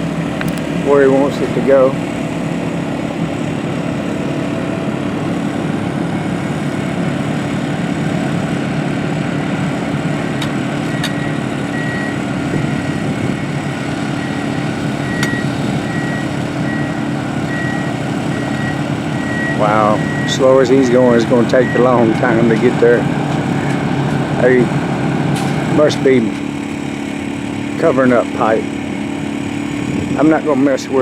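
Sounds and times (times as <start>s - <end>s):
truck engine running: 0.0s - 31.0s
reversing beeper: 10.1s - 26.1s.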